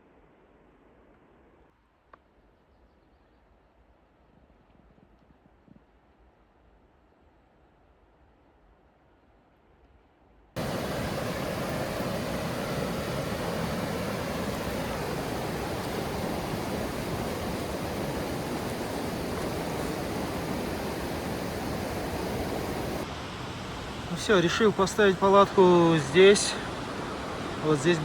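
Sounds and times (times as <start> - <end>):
mountain stream rushing: 10.6 - 28.0.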